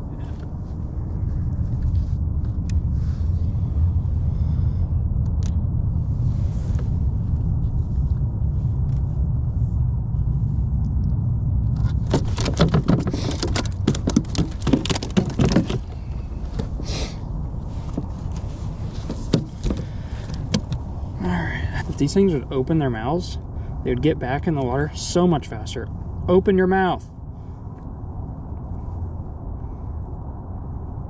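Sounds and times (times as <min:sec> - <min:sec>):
wind rumble on microphone: 0:00.0 - 0:31.0
fish clattering on kayak: 0:12.0 - 0:16.8, 0:18.9 - 0:20.8.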